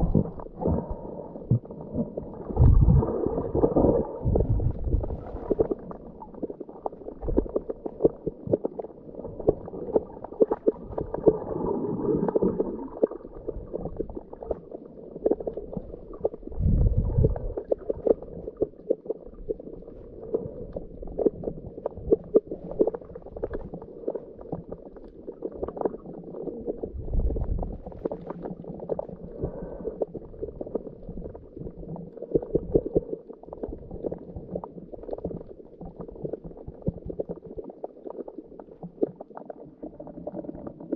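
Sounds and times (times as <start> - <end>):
scuba bubbles gurgling: 0.0 - 40.9
crackle of small clicks: 2.6 - 11.5, 17.2 - 40.9.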